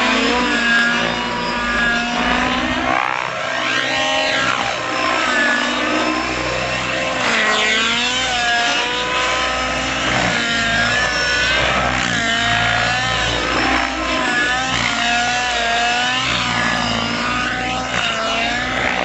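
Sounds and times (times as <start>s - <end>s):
model helicopter engine running: 0.0s - 19.0s.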